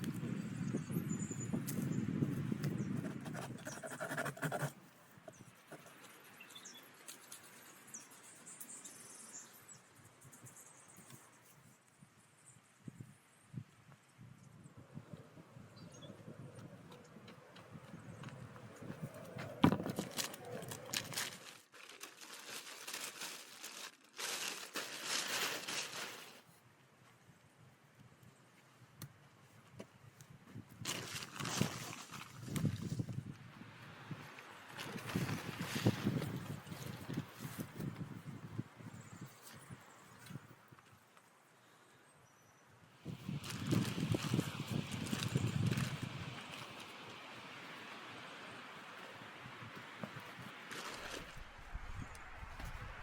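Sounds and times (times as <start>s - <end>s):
forest ambience: 2.6s - 29.7s
dense rustling or crunching: 19.4s - 26.5s, 30.8s - 33.0s, 50.5s - 53.0s.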